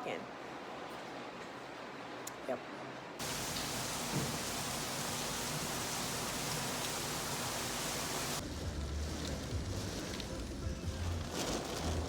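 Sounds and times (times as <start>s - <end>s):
heavy rain hissing: 3.2s - 10.6s.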